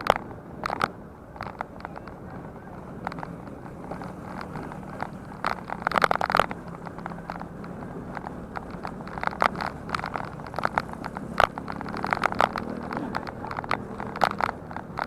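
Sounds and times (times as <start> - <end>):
bicycle rattling over rough ground: 0.0 - 15.0.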